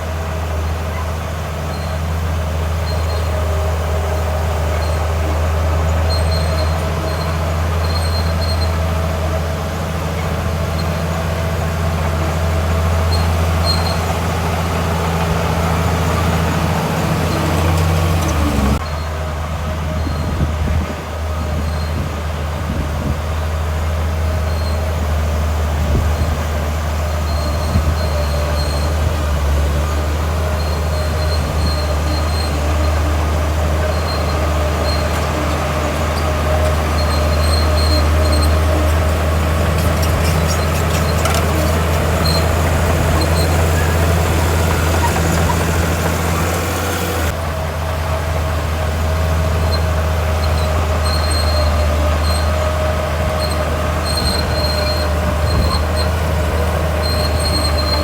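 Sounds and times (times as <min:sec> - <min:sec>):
bulldozer diesel engine running: 0:00.0 - 0:58.0
steel tracks squeaking: 0:00.4 - 0:47.4, 0:49.2 - 0:58.0
rattling clatter: 0:38.0 - 0:47.3.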